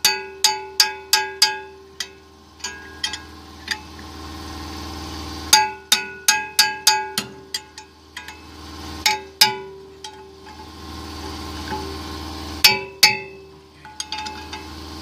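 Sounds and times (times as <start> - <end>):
metal tools clinking on steel: 0.0 - 3.9, 5.5 - 10.7, 12.6 - 14.7
steady low hum: 0.0 - 15.0.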